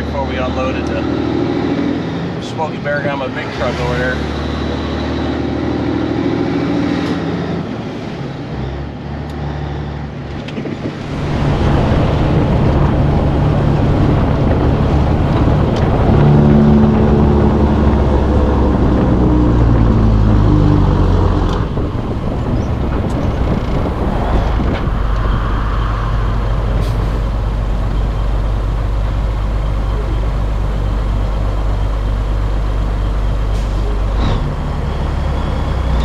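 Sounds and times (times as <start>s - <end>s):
truck diesel engine running: 10.8s - 36.0s.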